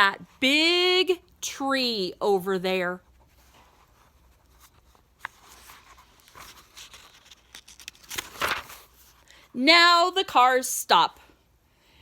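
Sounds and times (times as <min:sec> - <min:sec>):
paper pages rustling: 0:03.2 - 0:09.3.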